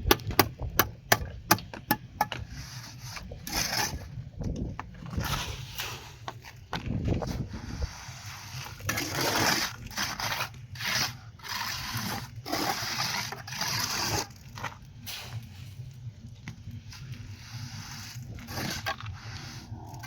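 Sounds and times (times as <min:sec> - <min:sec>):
scraping strokes: 0:02.3 - 0:04.2, 0:05.0 - 0:15.9, 0:16.7 - 0:20.0.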